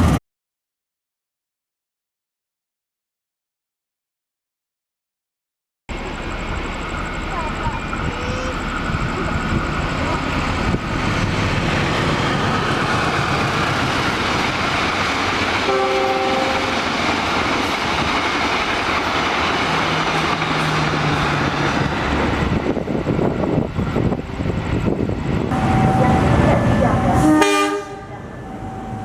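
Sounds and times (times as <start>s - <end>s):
train rolling roar: 0.0s - 0.2s, 5.9s - 29.0s
train horn blast: 15.6s - 16.9s, 25.5s - 29.0s.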